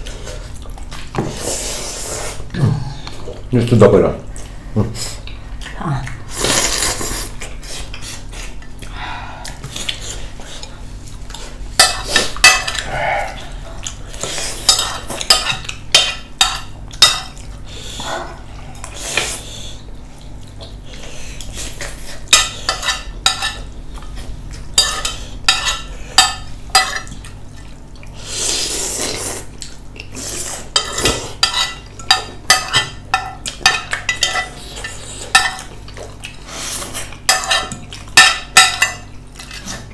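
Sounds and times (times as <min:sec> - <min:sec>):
utensils clinking against bowls: 0:11.3 - 0:12.9, 0:14.2 - 0:17.5, 0:21.8 - 0:23.7, 0:24.8 - 0:27.3, 0:30.6 - 0:36.1, 0:36.8 - 0:39.9.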